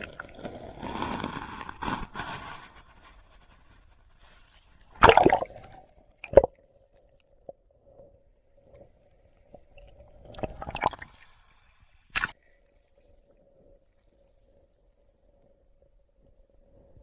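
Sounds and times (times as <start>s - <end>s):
wet water splashes and squishes: 0.0s - 1.1s, 5.0s - 6.5s.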